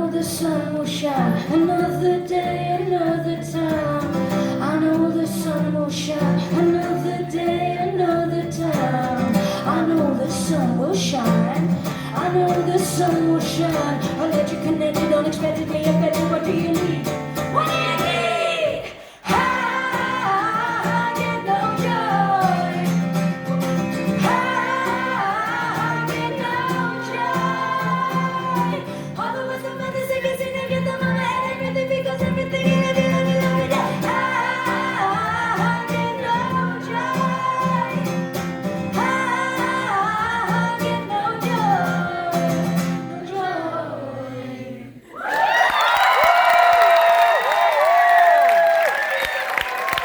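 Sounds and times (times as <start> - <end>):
woman singing wordless vocals: 0.0 - 23.2, 24.0 - 38.2, 38.8 - 45.2
live band with guitars: 0.0 - 44.0
audience cheering: 45.1 - 50.0.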